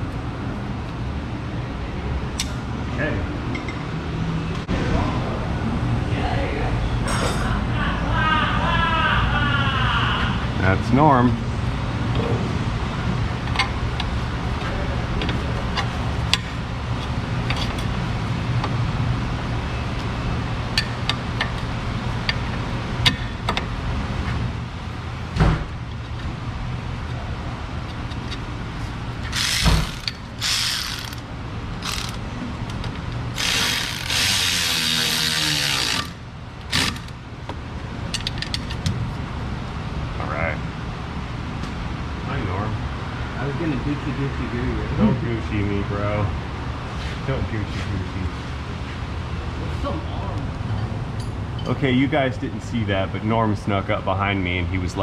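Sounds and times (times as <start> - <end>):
steady low hum: 0.0 - 55.0
ratchet clicking: 29.2 - 32.2, 33.3 - 37.1.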